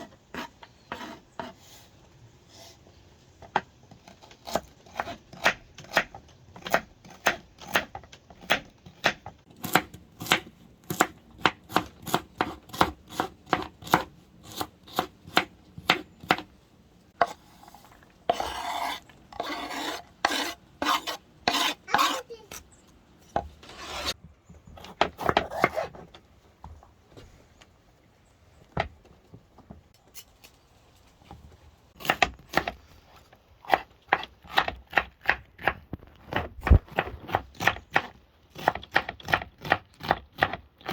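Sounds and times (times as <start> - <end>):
knife chopping on cutting board: 4.4 - 16.5
scraping and rubbing: 17.2 - 22.4, 23.3 - 24.2.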